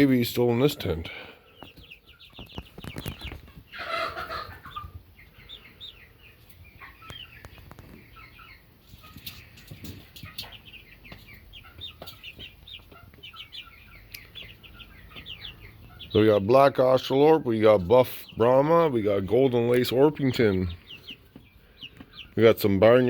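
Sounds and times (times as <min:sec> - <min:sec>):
chicks peeping: 0:00.0 - 0:23.0.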